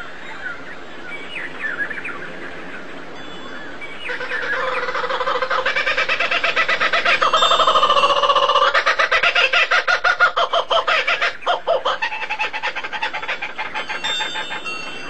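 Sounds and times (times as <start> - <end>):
birds chattering rapidly: 3.7 - 15.0.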